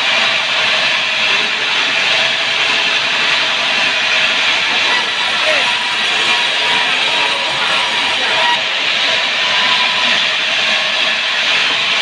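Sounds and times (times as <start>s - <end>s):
saw cutting through log: 1.6s - 9.8s.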